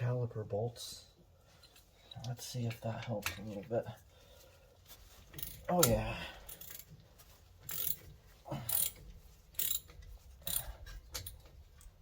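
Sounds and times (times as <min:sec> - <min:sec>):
ratchet wrench clicking: 0:05.4 - 0:06.9, 0:07.7 - 0:08.0, 0:08.7 - 0:11.9.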